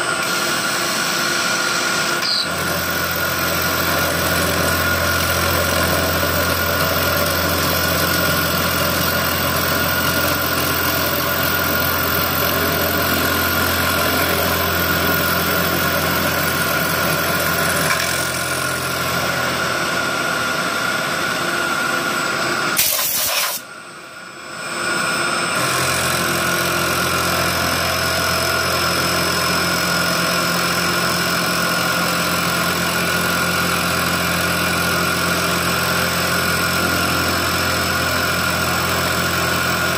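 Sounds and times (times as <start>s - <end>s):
short sharp machine noise: 0.0s - 20.6s, 22.4s - 23.7s
milling machine humming and whining: 0.0s - 39.9s.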